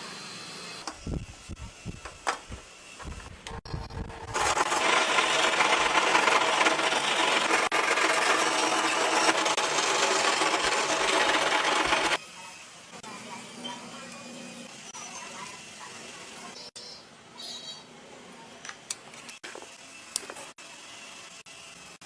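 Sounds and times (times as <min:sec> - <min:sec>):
loud rasping tool noise: 0:04.1 - 0:12.2.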